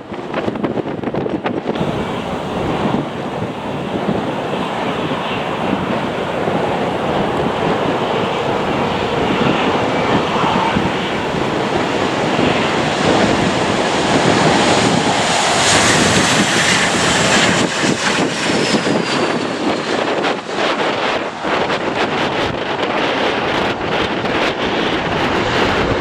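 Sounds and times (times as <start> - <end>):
jet airliner engines: 0.0 - 26.0
wind buffeting microphone: 0.0 - 26.0
faint falling whine: 1.8 - 16.6.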